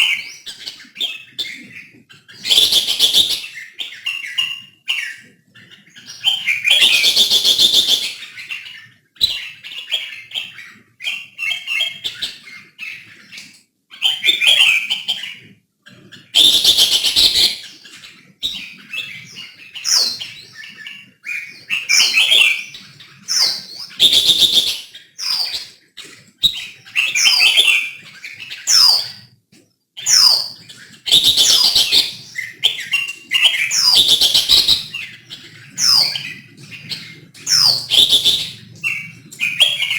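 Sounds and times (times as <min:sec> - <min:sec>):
bird singing whistled phrases: 0:16.2 - 0:17.8, 0:18.5 - 0:25.6, 0:26.4 - 0:29.1, 0:30.0 - 0:35.1, 0:37.5 - 0:39.9.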